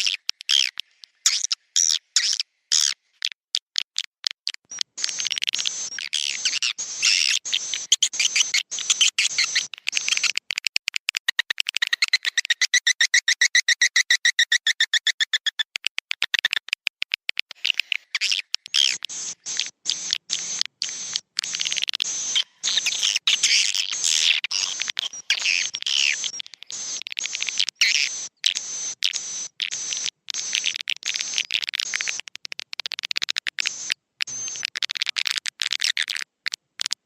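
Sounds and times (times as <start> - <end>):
swiftlets twittering: 4.7 - 10.4, 18.0 - 32.2.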